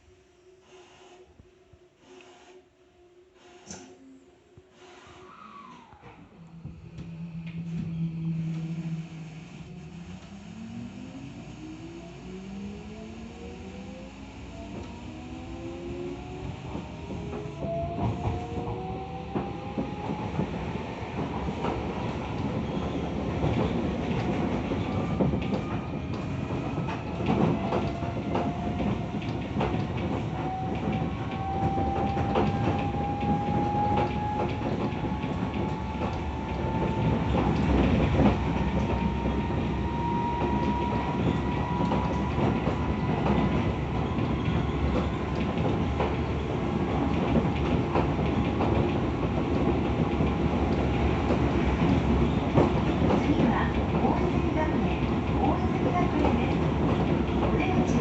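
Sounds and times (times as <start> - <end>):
train motor whine: 3.4 - 20.2
train rumble: 5.9 - 58.0.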